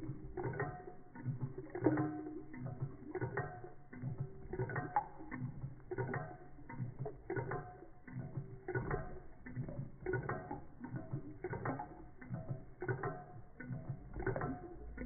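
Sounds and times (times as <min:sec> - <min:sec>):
toy engine clicking and clattering: 0:00.0 - 0:15.0.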